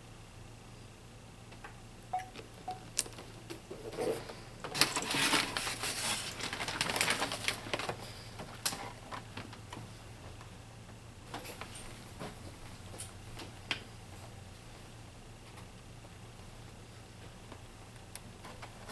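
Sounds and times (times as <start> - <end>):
packaging crinkling: 4.8 - 8.0.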